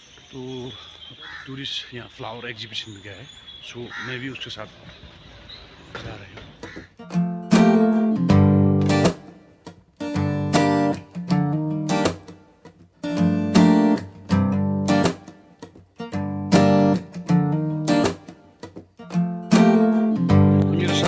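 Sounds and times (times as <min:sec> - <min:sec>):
strummed acoustic guitar: 0:06.6 - 0:21.0.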